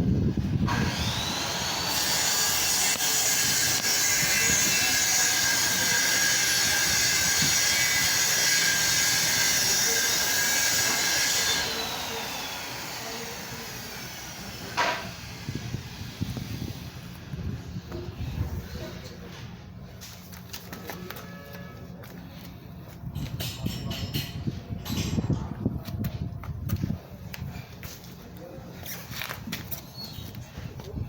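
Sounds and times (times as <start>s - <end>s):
high-speed motor whine: 0.0s - 18.8s.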